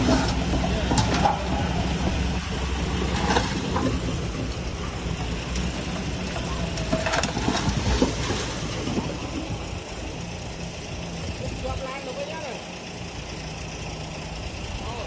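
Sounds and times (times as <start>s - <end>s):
metal clanks and squeaks: 0.0s - 9.7s
bulldozer diesel engine running: 0.0s - 15.0s.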